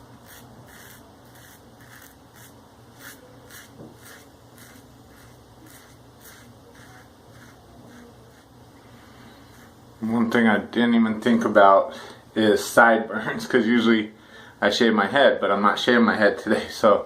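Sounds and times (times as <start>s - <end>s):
razor scraping stubble: 0.2s - 9.8s.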